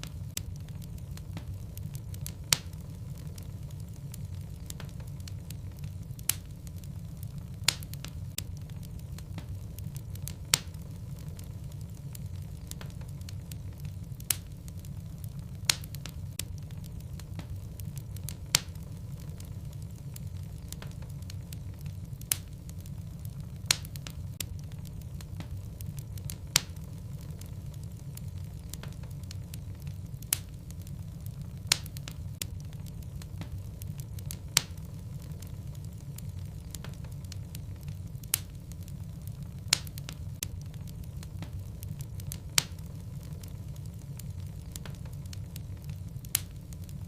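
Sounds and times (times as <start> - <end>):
logs crackling in fireplace: 0.0 - 47.0
low fire rumble: 0.0 - 47.0.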